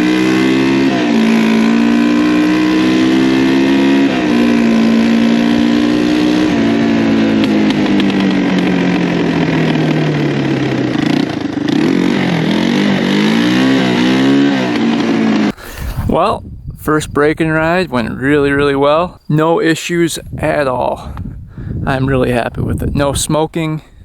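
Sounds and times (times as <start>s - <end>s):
motorbike engine running and revving: 0.0s - 16.1s.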